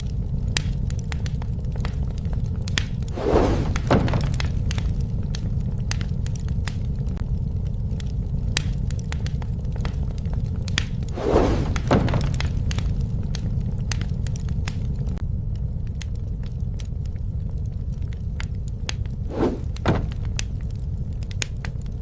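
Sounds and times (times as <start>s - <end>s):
campfire rumble: 0.0s - 22.0s
wood crackling and popping: 0.0s - 22.0s
crunching rush: 2.9s - 5.6s, 10.9s - 13.8s, 19.2s - 21.7s.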